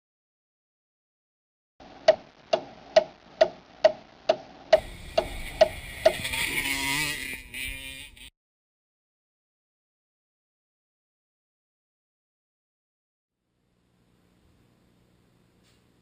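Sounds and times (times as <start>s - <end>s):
sharp evenly spaced ticks: 2.0s - 8.3s
hissing rush with wavering tone: 4.8s - 6.7s.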